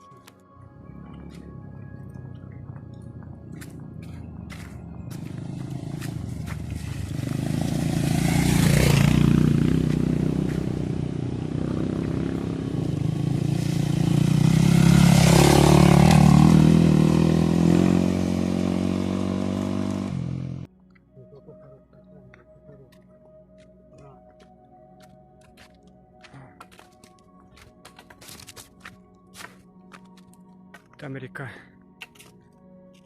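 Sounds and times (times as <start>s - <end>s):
motor vehicle engine running: 0.6s - 20.7s.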